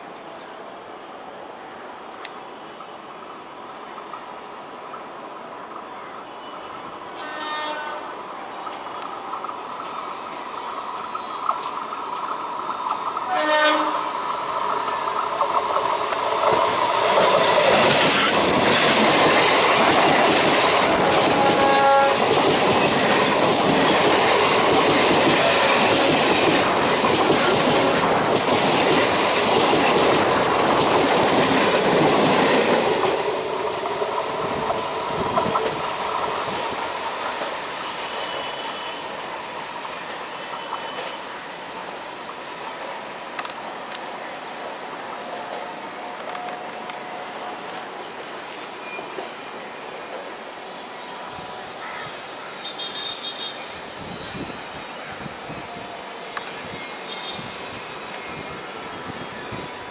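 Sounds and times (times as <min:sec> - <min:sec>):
train horn blast: 0:07.2 - 0:08.2, 0:13.3 - 0:14.1, 0:21.0 - 0:22.3, 0:38.2 - 0:39.1
train wheels clattering past: 0:08.6 - 0:41.4.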